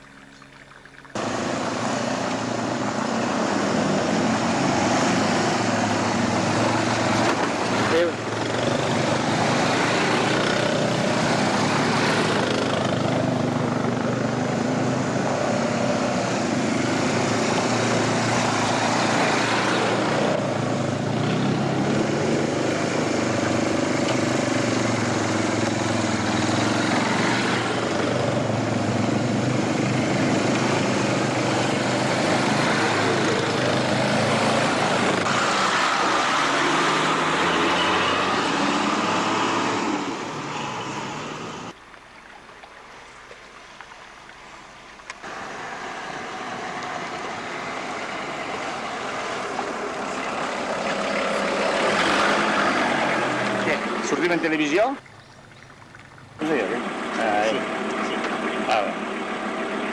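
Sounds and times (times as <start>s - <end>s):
vehicle engine running: 56.4s - 59.9s.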